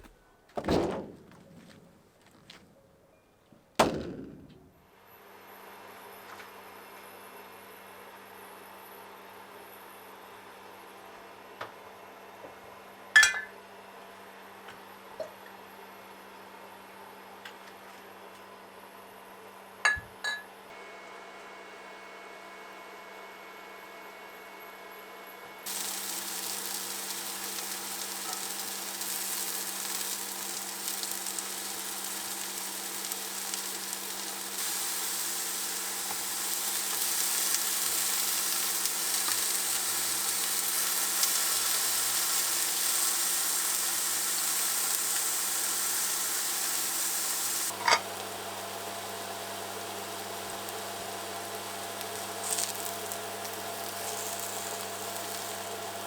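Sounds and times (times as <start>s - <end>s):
food sizzling in a pan: 25.7s - 56.0s.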